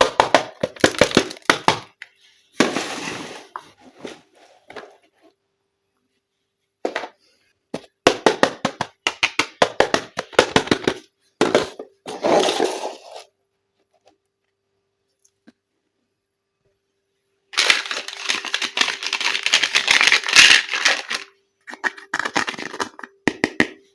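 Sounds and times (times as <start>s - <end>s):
plastic packaging crackling: 17.6s - 21.3s.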